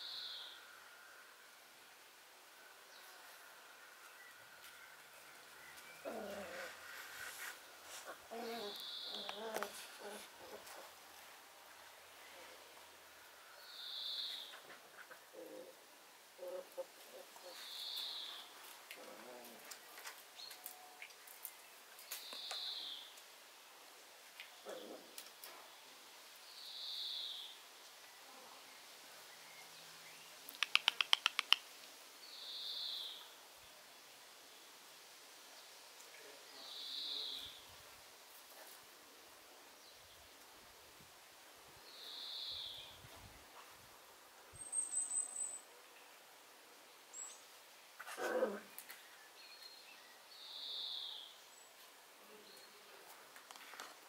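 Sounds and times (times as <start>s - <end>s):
small bird chipping: 30.5s - 31.6s.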